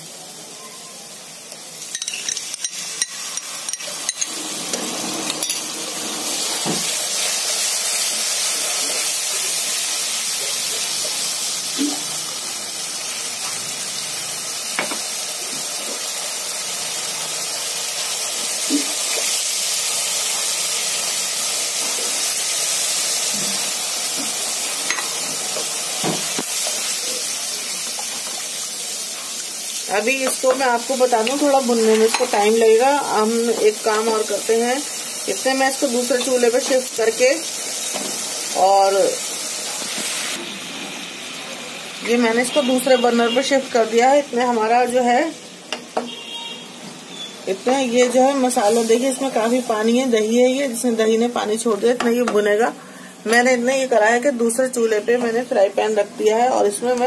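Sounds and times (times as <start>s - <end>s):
food sizzling in a frying pan: 0.0s - 57.0s.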